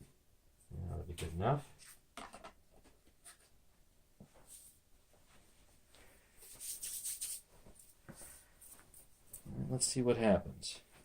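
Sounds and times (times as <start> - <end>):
faint rustling and handling: 0.6 - 9.9.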